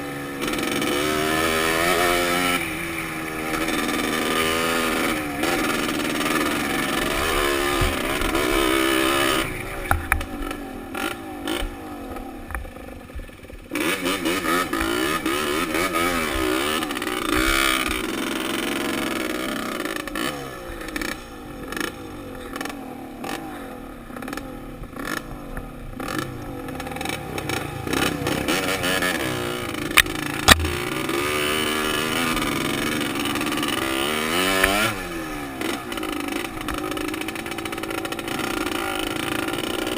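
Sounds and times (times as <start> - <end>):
dirt bike engine revving: 0.0 - 39.9
sharp knocks: 29.9 - 30.8.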